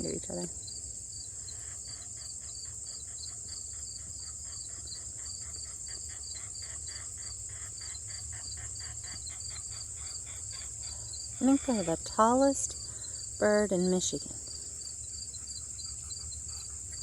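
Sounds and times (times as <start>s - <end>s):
crickets chirping: 0.0s - 17.0s
cranes calling: 1.5s - 14.2s.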